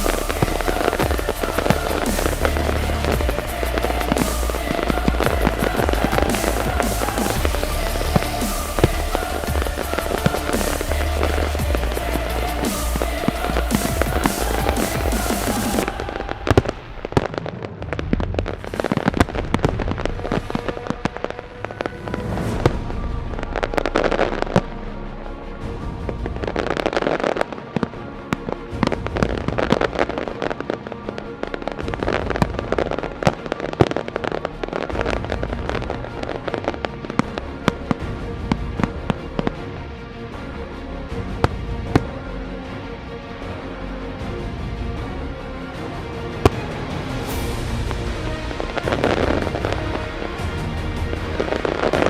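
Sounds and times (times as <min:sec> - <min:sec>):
fireworks bursting and crackling: 0:00.0 - 0:24.7, 0:26.4 - 0:27.9, 0:46.1 - 0:52.0.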